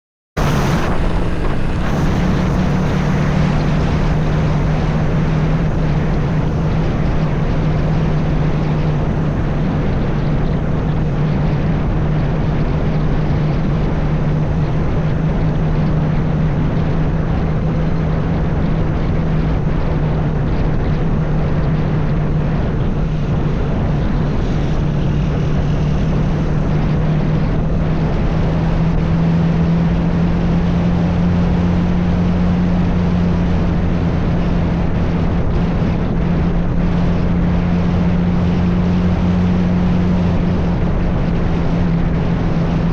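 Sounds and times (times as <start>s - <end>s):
road and wind noise: 0.4s - 42.9s
vehicle engine humming: 0.4s - 42.9s.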